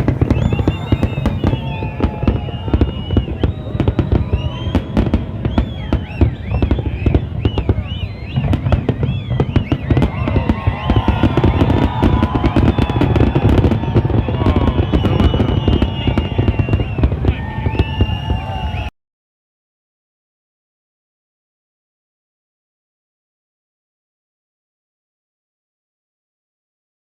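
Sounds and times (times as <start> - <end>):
fireworks bangs and crackling: 0.0 - 18.9
fireworks whistling: 0.0 - 18.9.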